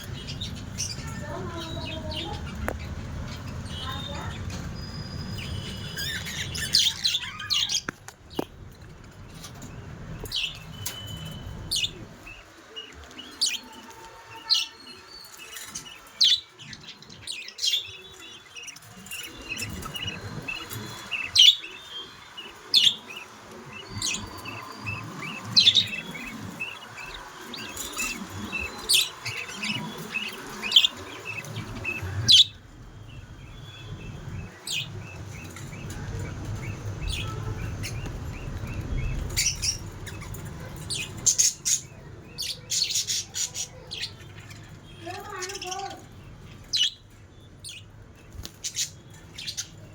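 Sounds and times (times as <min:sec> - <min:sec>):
continuous twittering chatter: 0:00.0 - 0:49.9
budgerigars chirping: 0:00.1 - 0:08.5, 0:15.4 - 0:32.6, 0:33.6 - 0:44.5.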